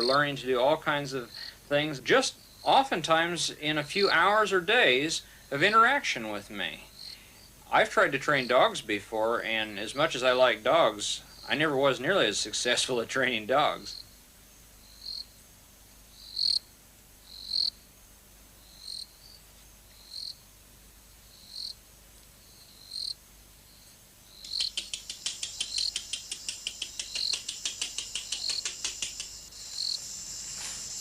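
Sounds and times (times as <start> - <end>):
insects chirping: 0.0 - 31.0
fast pulsing insect trill: 7.0 - 7.6, 13.9 - 14.2, 14.8 - 15.4, 16.1 - 17.8, 18.6 - 19.4, 20.0 - 20.4, 21.2 - 21.8, 22.4 - 31.0.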